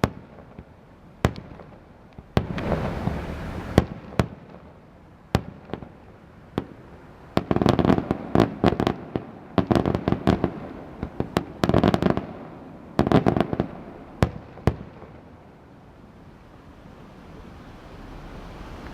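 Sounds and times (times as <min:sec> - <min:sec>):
firework bangs: 0:00.0 - 0:04.8, 0:05.4 - 0:15.2
fireworks crackling: 0:00.0 - 0:15.3.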